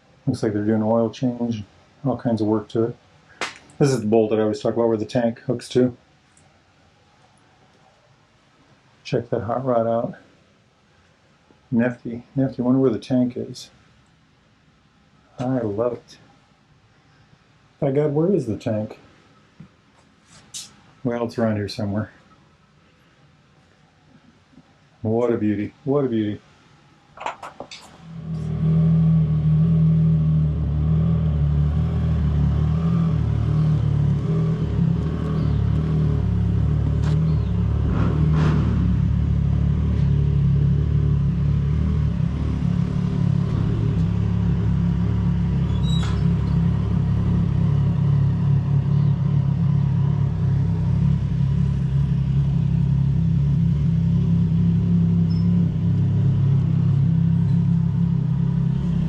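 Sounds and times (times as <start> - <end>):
low mechanical rumble: 27.8 - 59.0.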